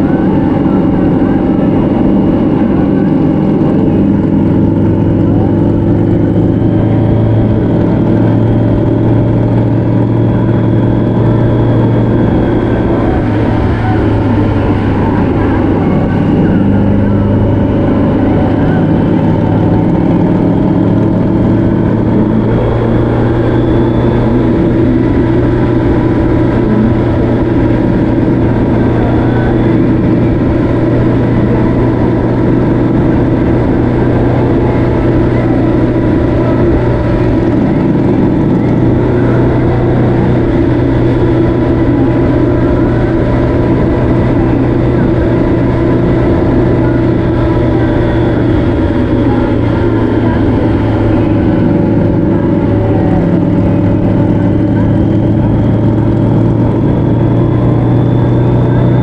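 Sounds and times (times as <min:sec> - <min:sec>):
vehicle engine cruising: 0:00.0 - 0:59.0
wind and road noise: 0:00.0 - 0:59.0.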